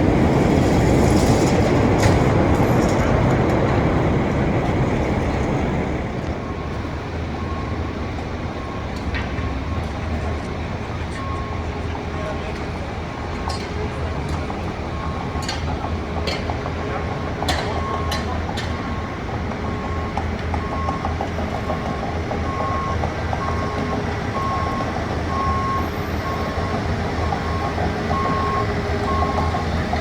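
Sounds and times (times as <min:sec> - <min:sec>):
diesel engine rumble: 0:00.0 - 0:30.0
backup alarm beeping: 0:17.7 - 0:30.0.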